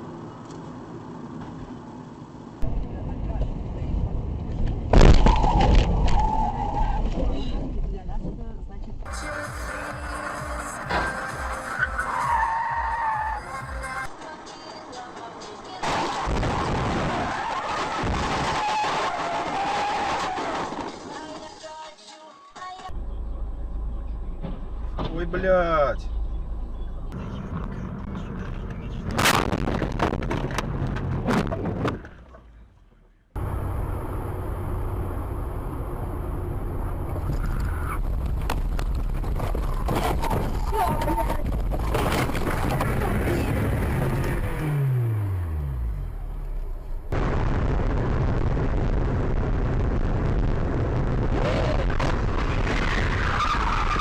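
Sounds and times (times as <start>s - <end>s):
car engine and road noise: 0.0s - 21.8s, 22.8s - 54.0s
car crash: 4.9s - 7.1s, 10.8s - 12.4s, 15.8s - 21.5s, 29.1s - 32.7s.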